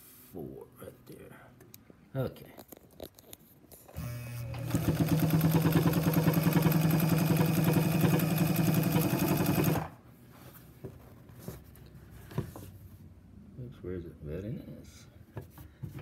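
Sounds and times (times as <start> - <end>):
sewing machine motor hum: 3.9 - 10.0
sewing machine stitching rattle: 4.5 - 9.9.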